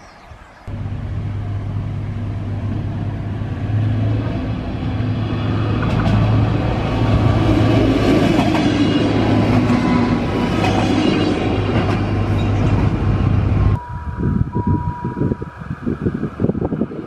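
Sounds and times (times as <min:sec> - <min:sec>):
diesel engine humming: 0:00.7 - 0:07.1
thin steady tone: 0:13.8 - 0:16.3.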